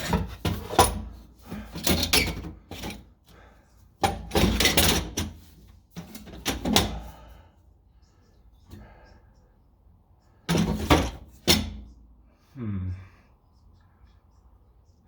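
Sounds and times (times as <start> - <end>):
metal exhaust pipe clanking and scraping: 0.0 - 3.1, 4.0 - 7.1, 10.5 - 11.9.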